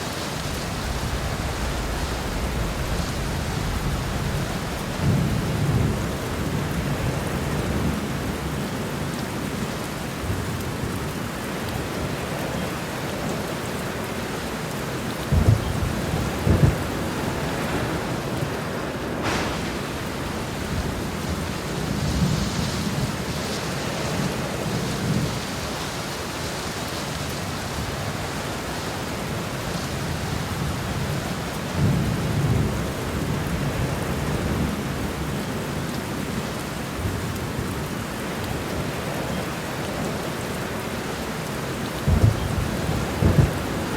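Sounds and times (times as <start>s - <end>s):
low thunder rumbling: 0.0s - 25.6s, 29.2s - 43.9s
heavy rain: 0.0s - 43.9s
sharp thunder claps: 0.3s - 8.0s, 15.2s - 23.1s, 42.0s - 43.9s.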